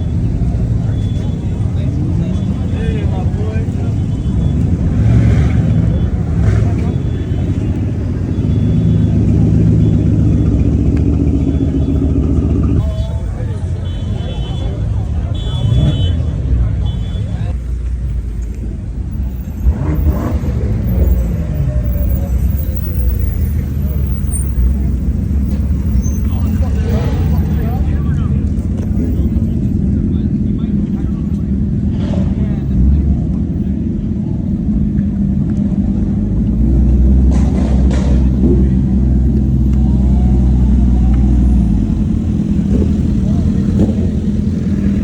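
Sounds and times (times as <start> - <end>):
car engine rumbling: 0.0 - 45.0.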